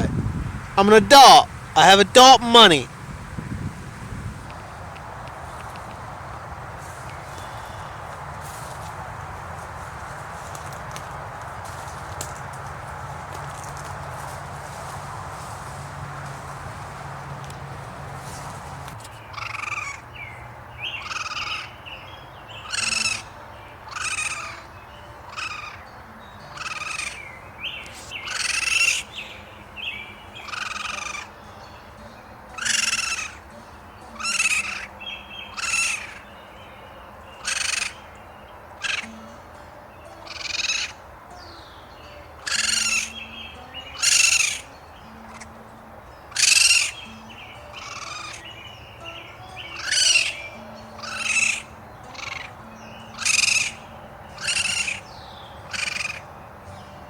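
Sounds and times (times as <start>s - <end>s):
bird rasping calls: 19.2s - 20.1s, 22.6s - 29.3s, 30.3s - 31.7s, 32.5s - 36.4s, 37.4s - 39.4s, 40.0s - 41.0s, 42.4s - 45.6s, 46.3s - 56.3s.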